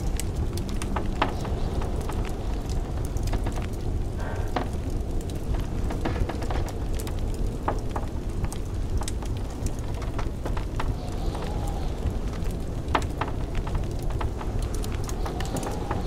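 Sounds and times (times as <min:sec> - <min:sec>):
blizzard wind rumbling: 0:00.0 - 0:16.0
wood fire crackling and popping: 0:00.0 - 0:16.0.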